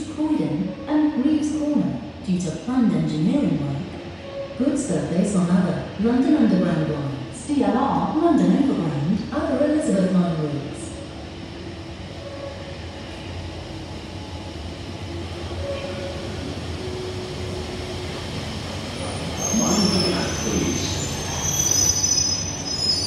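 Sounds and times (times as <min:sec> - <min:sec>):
train rumbling: 0:00.0 - 0:23.0
train wheels squealing on rails: 0:12.1 - 0:13.4, 0:15.4 - 0:23.0.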